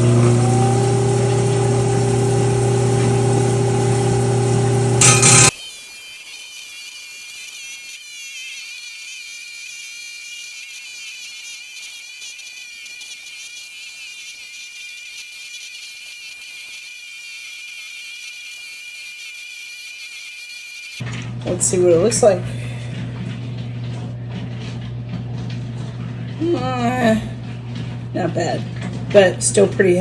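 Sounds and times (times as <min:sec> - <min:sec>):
saw blade grinding stone: 0:00.0 - 0:23.2.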